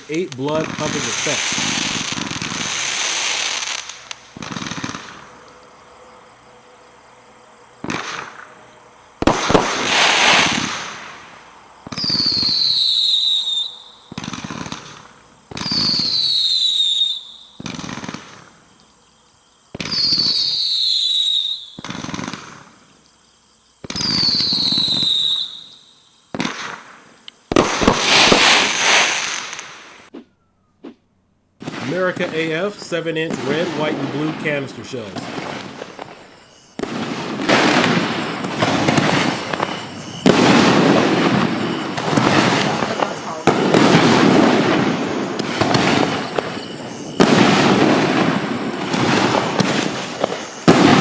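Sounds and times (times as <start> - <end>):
firework volleys bursting: 0.0 - 5.2, 9.2 - 11.1, 27.5 - 30.2, 31.6 - 51.0
high falling firework whistle: 11.9 - 14.3, 15.6 - 18.2, 19.9 - 22.4, 23.9 - 26.0, 35.2 - 51.0.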